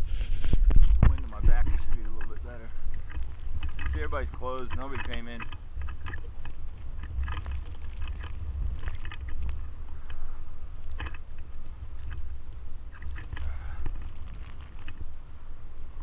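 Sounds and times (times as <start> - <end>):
wind buffeting microphone: 0.0 - 16.0
footsteps crunching in snow: 6.3 - 15.0.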